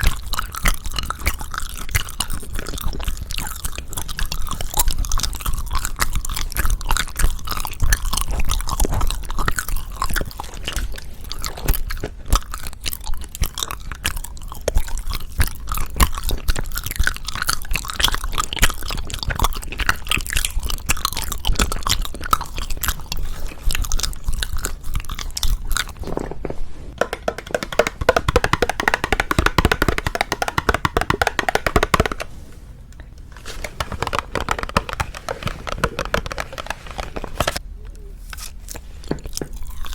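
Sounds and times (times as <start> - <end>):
chewing and crunching sweets: 0.0 - 39.9.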